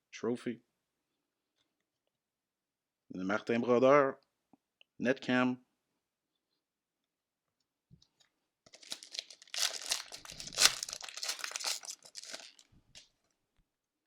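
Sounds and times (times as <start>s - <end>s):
card pack wrapper tearing: 8.7s - 13.1s.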